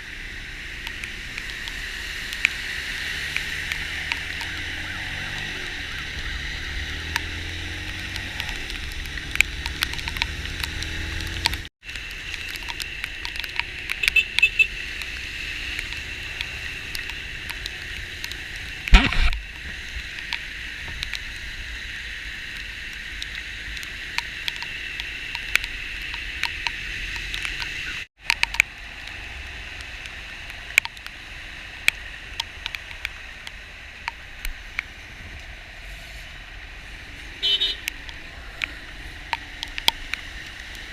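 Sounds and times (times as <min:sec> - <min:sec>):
heavy rain drops ticking: 0:00.1 - 0:35.8, 0:36.4 - 0:40.9
loud thump: 0:18.9 - 0:19.4.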